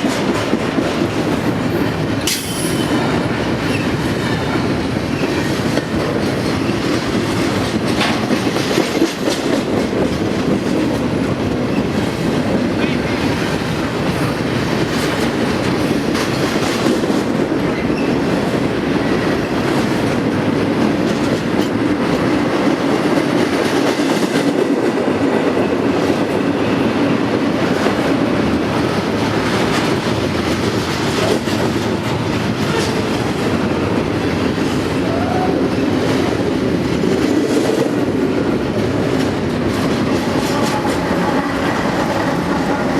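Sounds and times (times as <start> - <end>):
wheels clicking over rail joints: 0.0 - 13.1
train rumbling past: 0.0 - 42.9.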